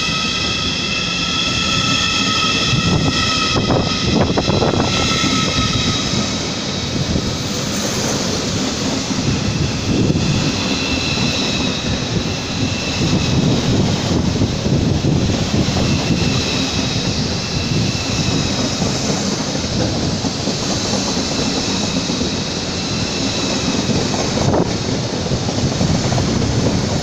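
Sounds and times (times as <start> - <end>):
high whining tones: 0.0 - 7.8
train running noise: 0.0 - 27.0.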